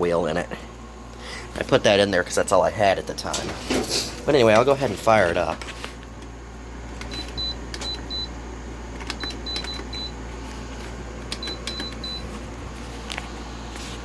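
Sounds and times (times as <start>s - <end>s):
steady low hum: 0.0s - 14.0s
key clicks: 7.0s - 10.2s, 11.2s - 12.4s.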